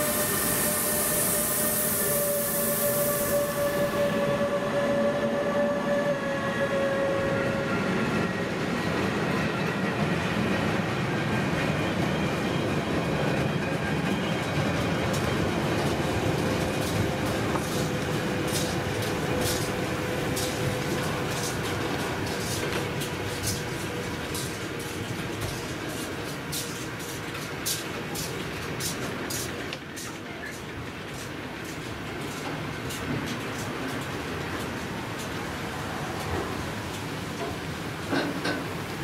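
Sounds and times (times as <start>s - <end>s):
high hiss: 0.0s - 4.4s
electric locomotive passing: 0.0s - 39.0s
wheels rumbling on rail: 0.0s - 39.0s.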